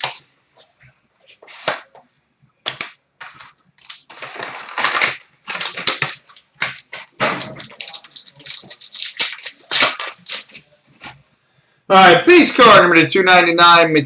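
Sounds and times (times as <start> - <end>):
plastic and foil wrapping crinkling: 0.0 - 0.3, 2.7 - 10.7.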